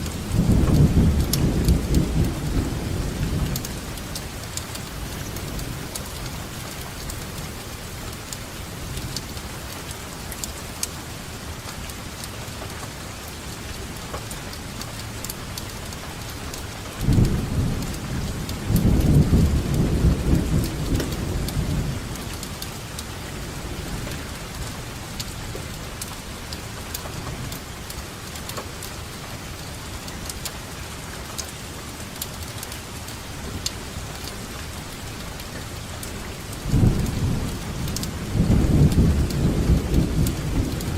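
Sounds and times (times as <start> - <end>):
thunder rumbling: 0.0 - 6.2, 17.0 - 25.8, 36.6 - 40.9
raindrop ticks: 0.0 - 40.9
steady rainfall: 0.0 - 40.9.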